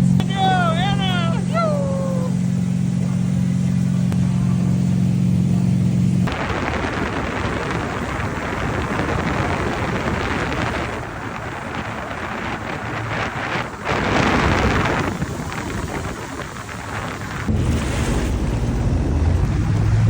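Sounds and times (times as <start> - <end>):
jet ski engine humming: 0.0 - 20.0
wind rushing over microphone: 6.2 - 20.0.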